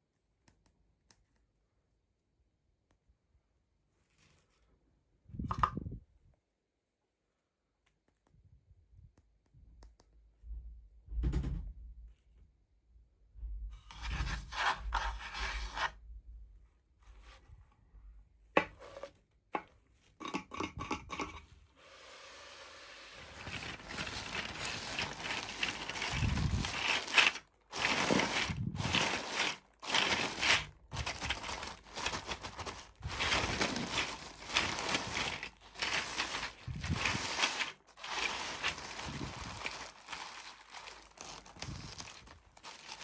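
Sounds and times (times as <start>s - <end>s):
packaging crinkling and tearing: 23.2s - 43.0s.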